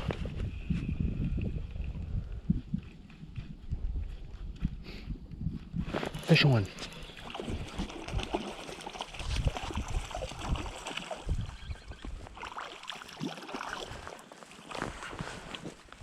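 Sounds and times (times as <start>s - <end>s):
creek water running and splashing: 6.1s - 15.8s.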